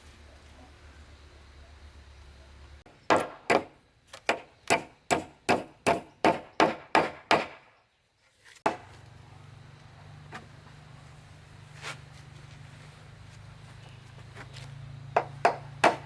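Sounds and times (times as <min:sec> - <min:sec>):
tool striking wood: 0:03.1 - 0:07.7, 0:08.7 - 0:09.0, 0:15.1 - 0:16.0.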